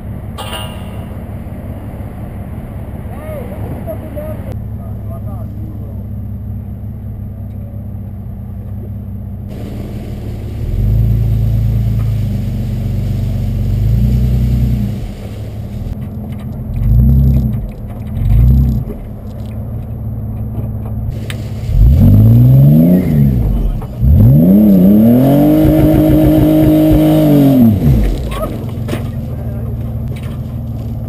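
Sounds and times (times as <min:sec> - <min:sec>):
car engine revving: 0:09.5 - 0:31.0.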